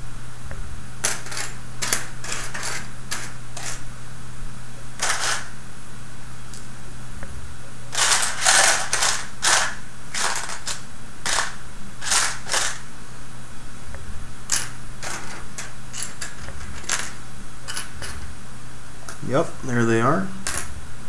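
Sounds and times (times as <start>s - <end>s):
plastic parts clicking and rattling: 1.0s - 3.8s, 5.0s - 5.4s, 7.9s - 12.8s, 14.5s - 17.2s.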